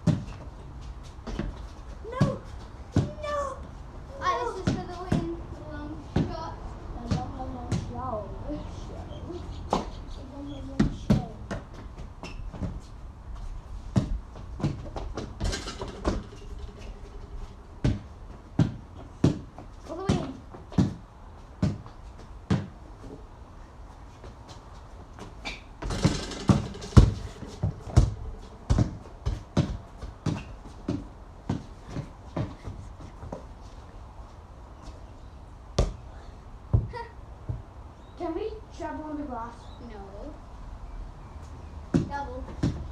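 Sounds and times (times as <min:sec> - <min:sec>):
basketball bouncing: 0:13.9 - 0:16.8, 0:17.8 - 0:21.0, 0:25.8 - 0:32.5
noisy clatter: 0:25.8 - 0:27.6.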